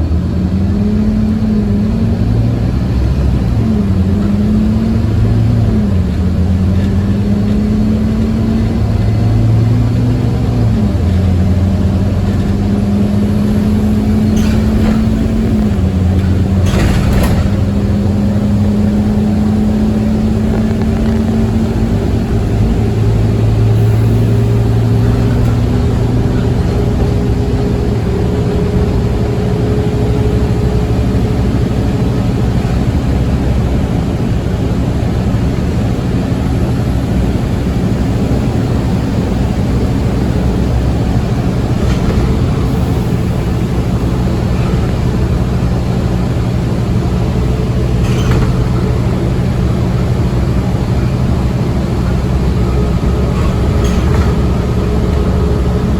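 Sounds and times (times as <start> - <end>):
bus diesel engine running: 0.0 - 55.9
road and tyre noise: 0.0 - 55.9
faint rattles: 13.4 - 29.6.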